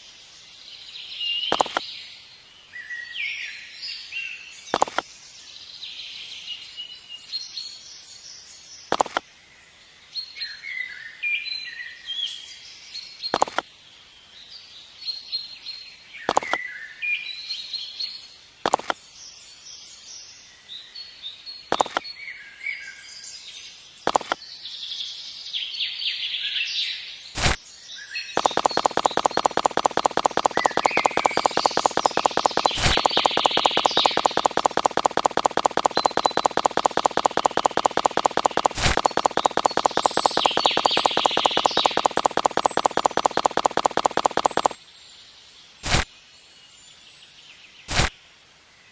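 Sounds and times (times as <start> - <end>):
small birds chirping: 0.0 - 9.3, 13.0 - 13.8, 14.4 - 16.8, 23.9 - 24.5, 27.4 - 48.2
fast mechanical ticking: 1.5 - 1.8, 4.8 - 5.0, 8.9 - 9.2, 13.4 - 13.6, 18.7 - 18.9, 21.7 - 22.0, 24.1 - 24.4, 27.4 - 27.6, 28.4 - 44.8, 45.8 - 46.1, 47.9 - 48.1
sharp clicks: 1.5 - 1.8, 4.7 - 5.1, 8.9 - 9.2, 13.3 - 13.7, 16.3 - 16.6, 18.6 - 19.0, 21.7 - 22.0, 24.1 - 24.4, 27.4 - 27.6, 28.4 - 44.8, 45.8 - 46.1, 47.9 - 48.1.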